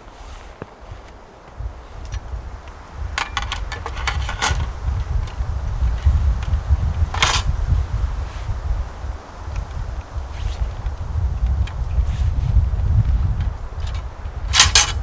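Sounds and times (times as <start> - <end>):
gear clicking and clattering: 3.2 - 5.4, 6.4 - 7.5, 13.4 - 15.0
short scrape: 10.3 - 10.8.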